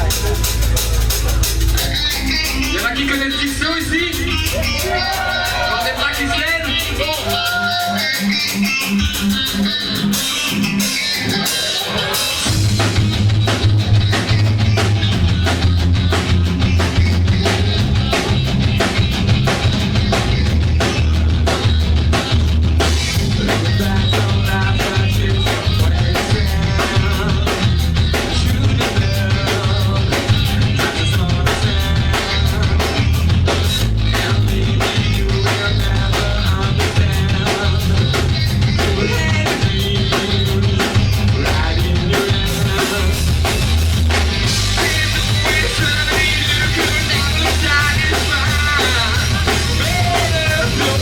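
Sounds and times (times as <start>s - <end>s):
drum kit beat: 0.0s - 51.0s
live rock band playing: 0.0s - 51.0s
person singing: 23.2s - 33.3s, 34.0s - 43.6s, 44.5s - 51.0s.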